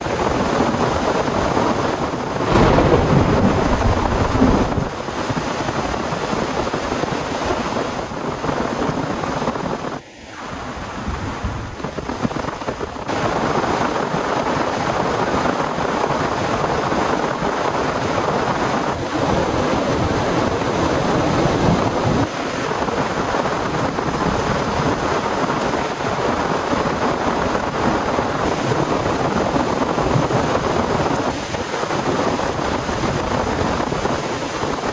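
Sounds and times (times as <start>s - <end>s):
heavy rain pouring: 0.6s - 7.0s, 18.1s - 34.0s
thunder rumble: 2.2s - 6.4s, 18.9s - 22.3s.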